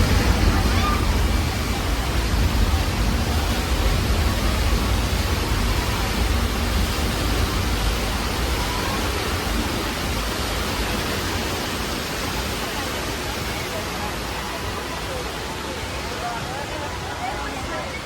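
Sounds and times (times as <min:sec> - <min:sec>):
deep rumble: 0:00.0 - 0:11.2
rushing flood water: 0:00.0 - 0:18.0.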